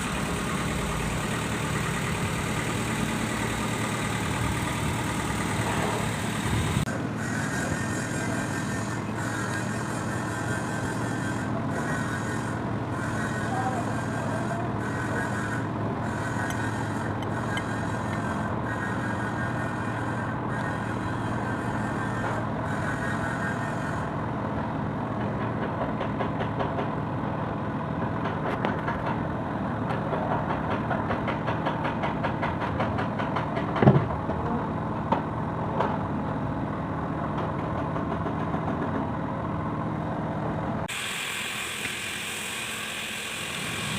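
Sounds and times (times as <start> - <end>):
diesel engine running: 0.0 - 43.9
sharp clicks and knocks: 29.9 - 34.4.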